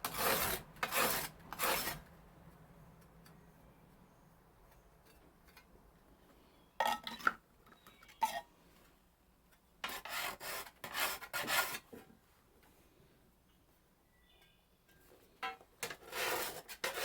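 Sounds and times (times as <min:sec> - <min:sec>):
whetstone scraping scythe blade: 0:00.0 - 0:02.0, 0:15.8 - 0:17.0.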